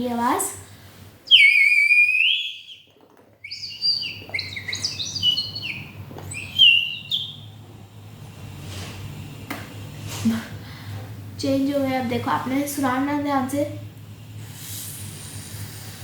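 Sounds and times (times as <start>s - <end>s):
water bird whistle warbling: 1.3s - 7.5s.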